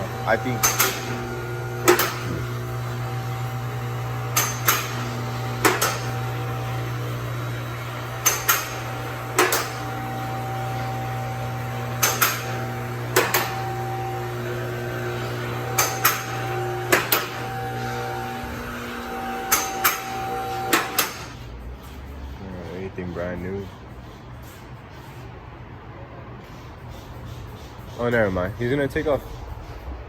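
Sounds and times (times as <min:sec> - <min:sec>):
low machine hum: 0:00.0 - 0:23.0
hammer striking metal: 0:00.5 - 0:01.2, 0:01.8 - 0:02.4, 0:04.3 - 0:06.2, 0:08.2 - 0:09.9, 0:12.0 - 0:13.7, 0:15.7 - 0:17.5, 0:19.5 - 0:21.4.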